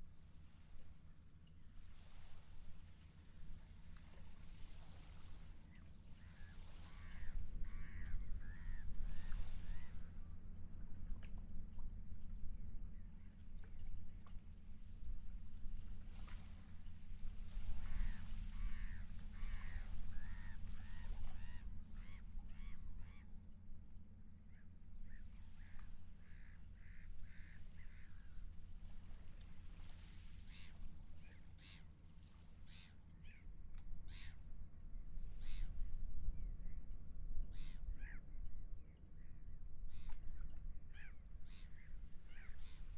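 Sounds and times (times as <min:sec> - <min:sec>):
steady low rumble: 0:02.4 - 0:31.2
gulls calling: 0:17.8 - 0:23.3, 0:40.9 - 0:42.9.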